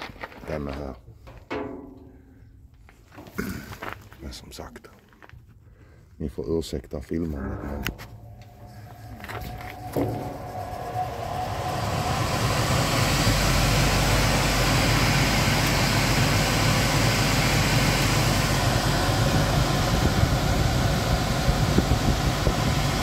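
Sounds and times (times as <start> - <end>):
electric blower fan running: 7.5 - 23.0.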